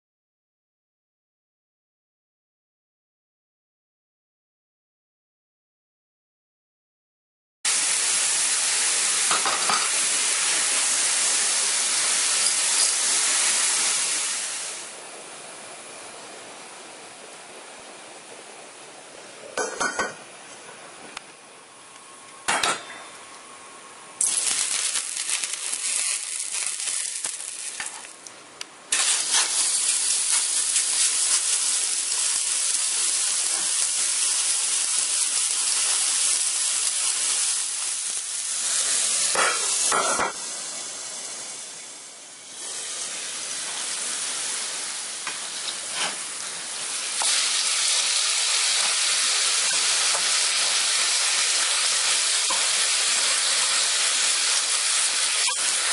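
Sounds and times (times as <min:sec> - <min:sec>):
meat sizzling in oil: 0:07.7 - 0:14.9, 0:24.2 - 0:28.2, 0:28.9 - 0:55.9.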